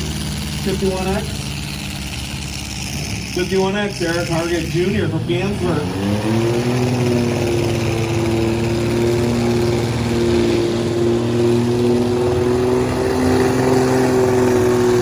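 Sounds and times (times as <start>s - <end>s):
truck engines running hard: 0.0s - 15.0s.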